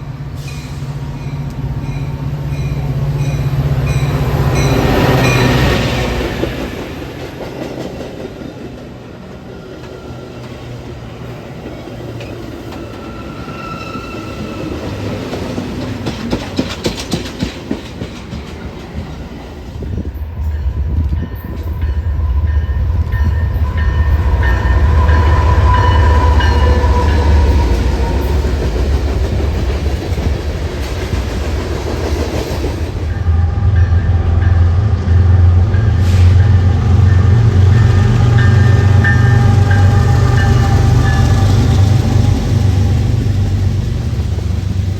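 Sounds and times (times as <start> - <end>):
train rumble: 0.0 - 44.9
train wheels clicking over rail joints: 14.6 - 22.0, 23.0 - 33.1.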